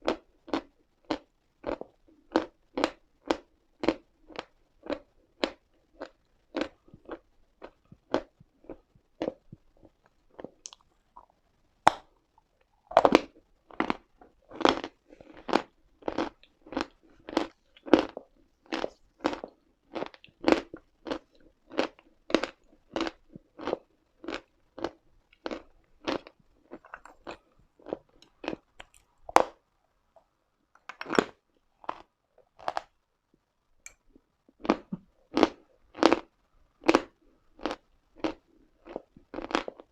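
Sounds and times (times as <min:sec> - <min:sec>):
chalk crunching when chewed: 0:12.9 - 0:29.6, 0:34.6 - 0:39.9.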